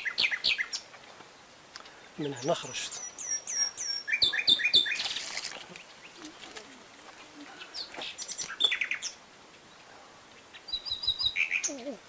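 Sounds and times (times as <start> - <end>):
birds chirping: 0.0 - 12.0
noisy rustle: 4.8 - 10.8.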